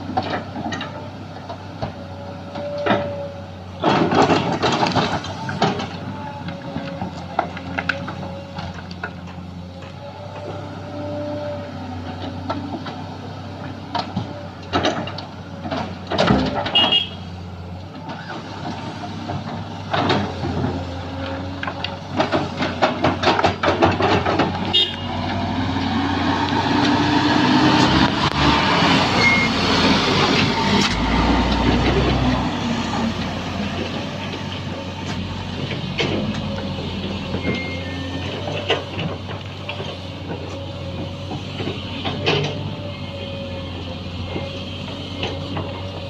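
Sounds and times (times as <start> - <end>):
excavator diesel engine: 0.0 - 46.0
metal clanks and knocks: 21.6 - 25.4.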